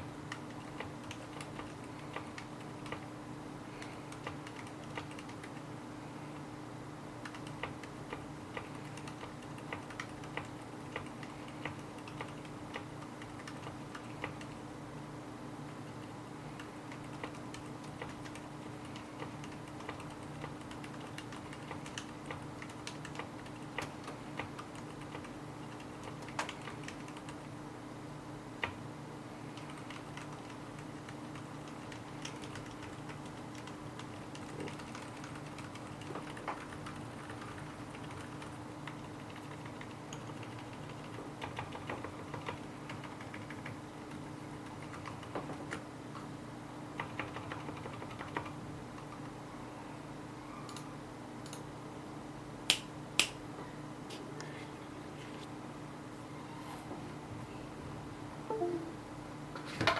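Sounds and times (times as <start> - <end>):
mechanical keyboard clicks: 0.3 - 3.1, 4.1 - 5.7, 7.2 - 14.6, 16.9 - 27.4, 29.6 - 45.8, 47.0 - 49.3.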